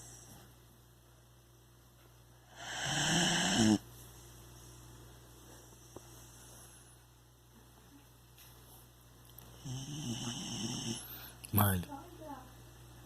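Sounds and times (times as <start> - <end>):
dog snoring: 2.5 - 3.9, 9.6 - 11.3.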